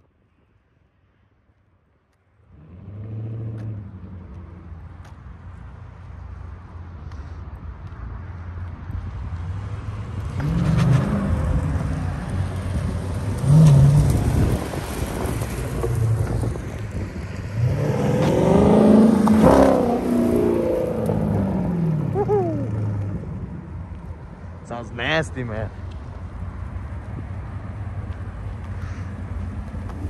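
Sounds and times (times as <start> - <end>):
car engine revving: 17.4 - 23.8.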